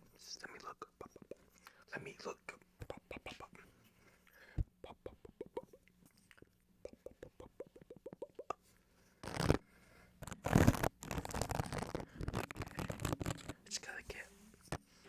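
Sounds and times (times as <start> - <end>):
scratching and rubbing on microphone: 9.2 - 9.6, 10.2 - 14.9.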